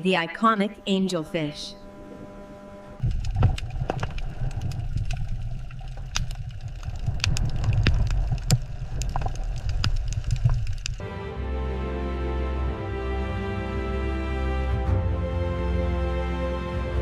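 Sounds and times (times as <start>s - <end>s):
underwater low rumble: 1.8s - 11.0s
underwater clicks and crackles: 3.0s - 11.0s.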